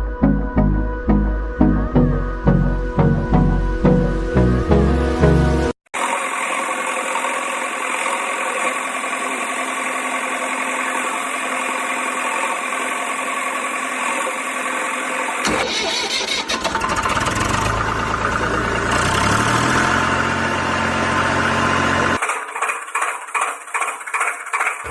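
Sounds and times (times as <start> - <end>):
toy engine sound: 6.0 - 17.8.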